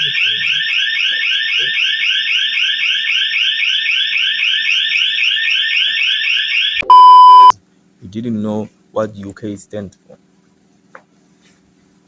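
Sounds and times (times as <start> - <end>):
electronic alarm warbling: 0.0 - 7.5
loud high beep: 6.8 - 7.5.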